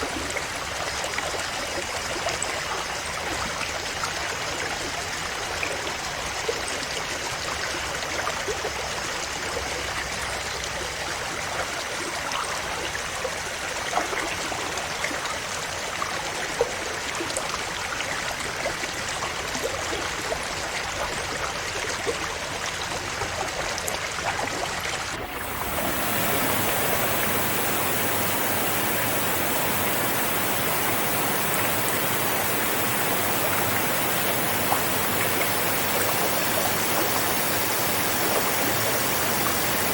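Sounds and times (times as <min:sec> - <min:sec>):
river water flowing over rocks: 0:25.2 - 0:39.9.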